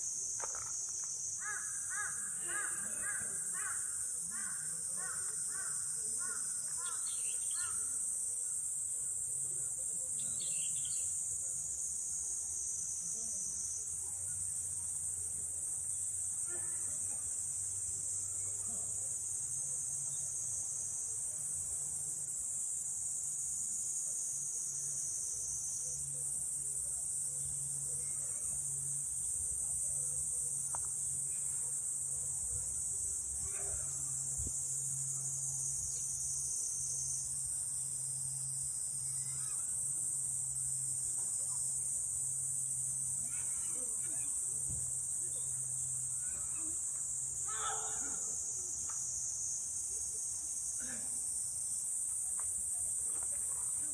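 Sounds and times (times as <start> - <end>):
insects chorus: 0.0 - 53.9.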